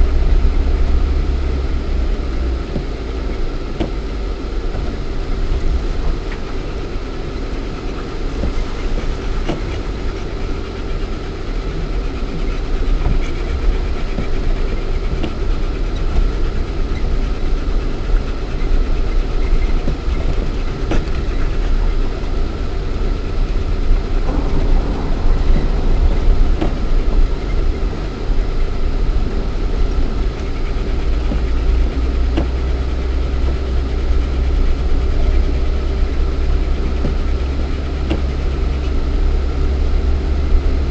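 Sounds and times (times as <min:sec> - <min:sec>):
car engine running at low speed: 0:00.0 - 0:40.9
car body knocks and rattles: 0:23.7 - 0:32.8, 0:37.0 - 0:38.8.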